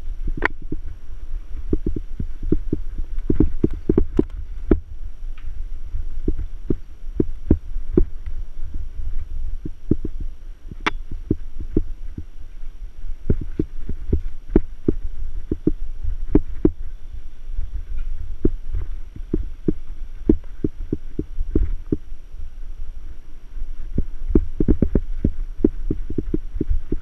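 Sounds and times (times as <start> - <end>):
sharp click: 9.9 - 11.1.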